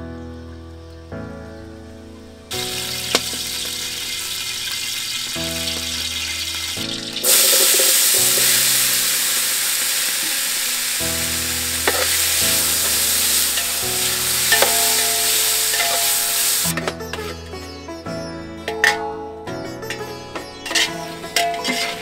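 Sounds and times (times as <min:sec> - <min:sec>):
soft background music: 0:00.0 - 0:22.0
tomatoes sizzling in hot oil: 0:02.5 - 0:16.7, 0:19.8 - 0:22.0.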